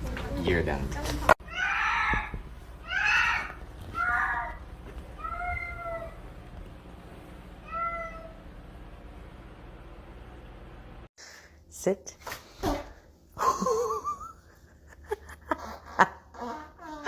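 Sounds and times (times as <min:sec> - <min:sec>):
cat meowing: 0:01.5 - 0:04.6, 0:05.2 - 0:06.2, 0:07.6 - 0:08.4.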